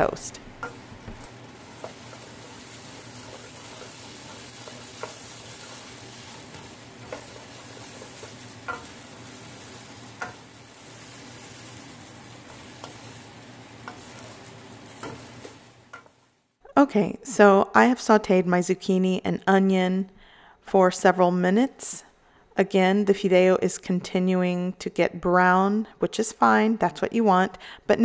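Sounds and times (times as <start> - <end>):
vegetables sizzling in oil: 0.0 - 16.5.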